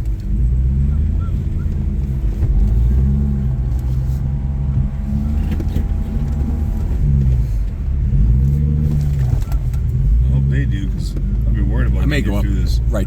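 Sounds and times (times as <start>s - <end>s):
engine running at low revs: 0.0s - 13.0s
faint whine: 0.7s - 8.0s.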